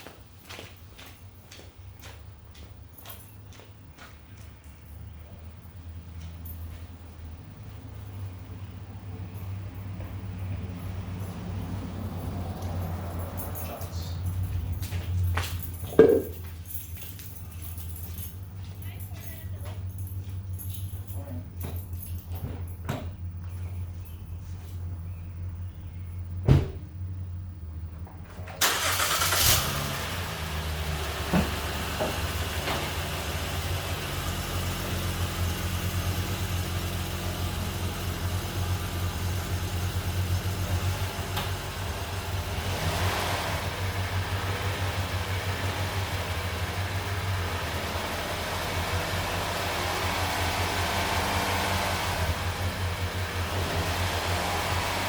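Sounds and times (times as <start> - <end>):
car engine running: 28.6 - 55.0.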